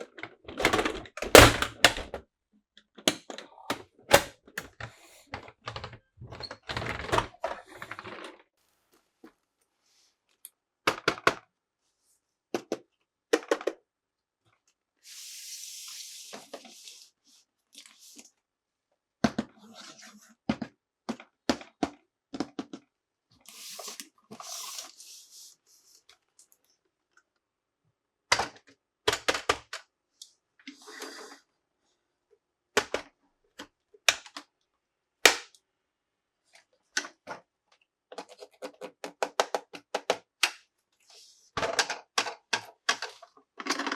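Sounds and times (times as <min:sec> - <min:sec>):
plastic clicks and knocks: 0:00.5 - 0:02.2, 0:03.1 - 0:07.3.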